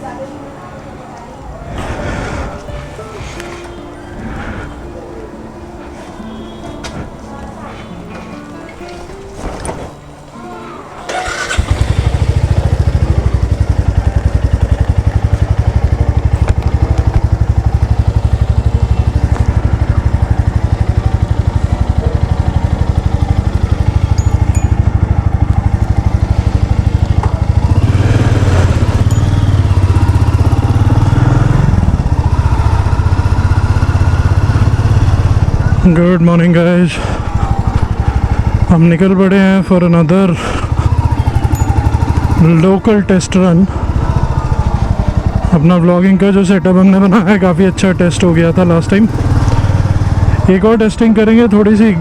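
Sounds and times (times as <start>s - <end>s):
motorcycle engine running: 11.1s - 52.0s.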